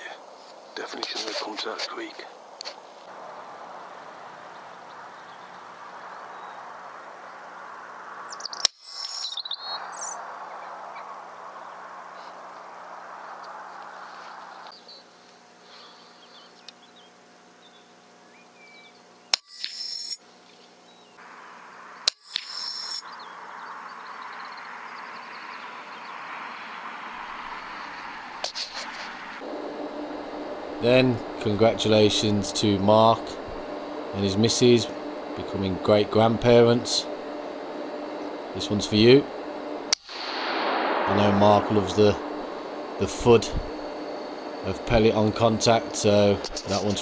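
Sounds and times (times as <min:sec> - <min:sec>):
outdoor hiss: 0:00.0 - 0:19.4, 0:20.2 - 0:47.0
faint bird chirps: 0:04.4 - 0:12.6, 0:13.2 - 0:26.3.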